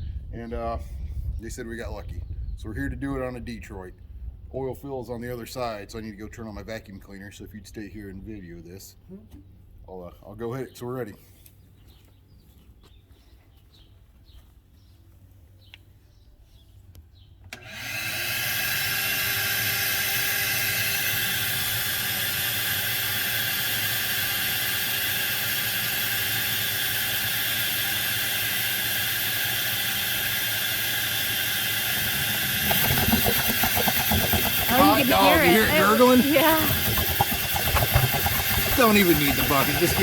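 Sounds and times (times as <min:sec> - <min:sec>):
vacuum cleaner motor whine: 0:17.5 - 0:40.0.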